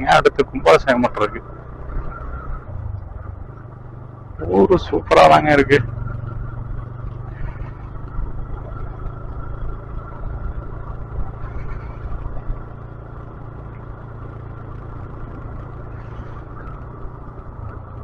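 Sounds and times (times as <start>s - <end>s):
motorcycle engine running: 0.0s - 18.0s
wind rumbling on microphone: 5.8s - 18.0s.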